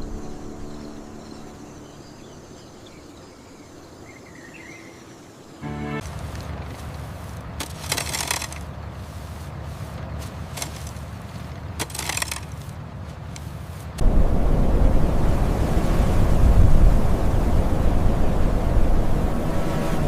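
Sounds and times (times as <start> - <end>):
machinery humming: 5.6 - 10.0.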